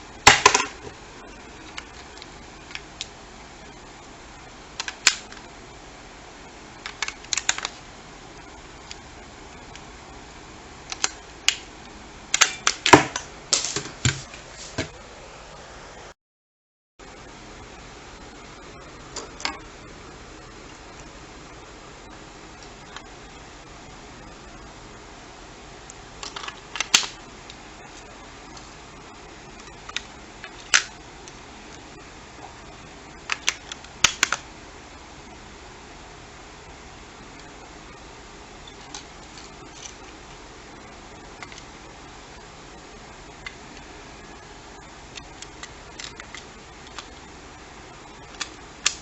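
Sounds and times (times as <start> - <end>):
plastic parts clicking: 4.8 - 5.4, 6.8 - 7.8, 10.9 - 11.6, 26.2 - 27.6, 29.6 - 31.0, 33.2 - 34.4, 45.1 - 47.2, 48.3 - 49.0.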